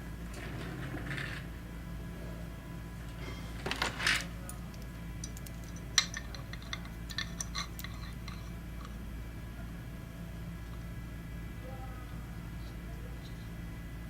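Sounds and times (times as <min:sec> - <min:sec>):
small metal parts clinking: 0:03.8 - 0:08.9.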